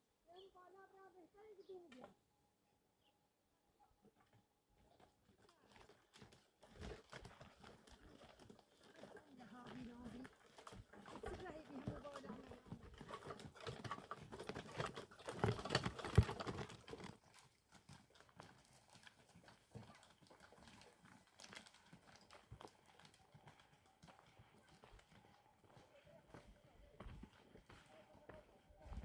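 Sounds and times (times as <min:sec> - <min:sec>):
irregular knocking and clatter: 0:05.7 - 0:22.7.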